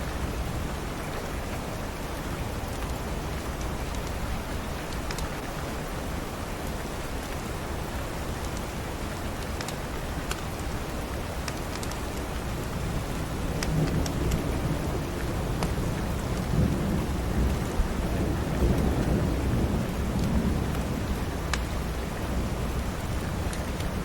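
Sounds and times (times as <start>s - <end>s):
heavy rain: 0.0s - 24.0s
wood fire crackles: 8.1s - 18.0s, 19.8s - 22.0s, 22.8s - 24.0s
low rumble of thunder: 12.6s - 24.0s.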